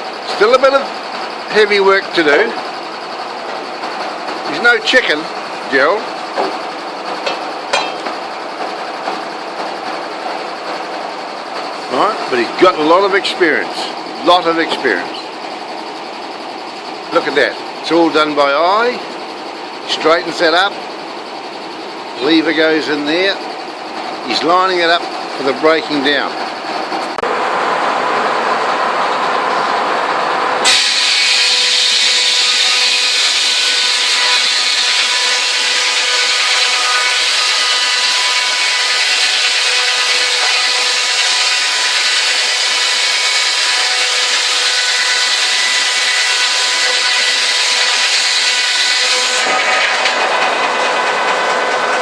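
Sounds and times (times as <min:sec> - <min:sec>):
sawmill saw whining: 0:00.0 - 0:52.0
saw cutting log: 0:30.6 - 0:52.0.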